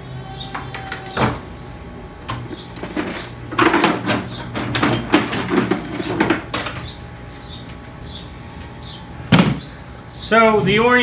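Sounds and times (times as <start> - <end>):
metal tools clattering: 2.6 - 6.9.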